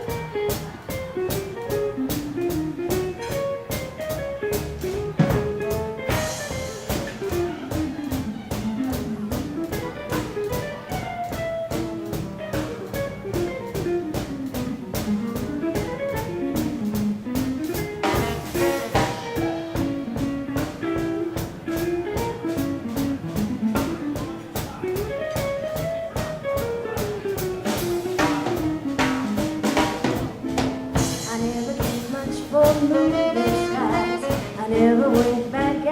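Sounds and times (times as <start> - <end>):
swing band playing: 0.0 - 35.9.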